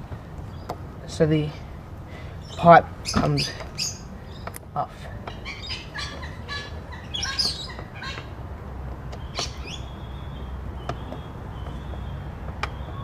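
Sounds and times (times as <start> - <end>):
birds chirping and whistling: 2.1 - 4.6, 5.2 - 8.3, 9.1 - 13.0.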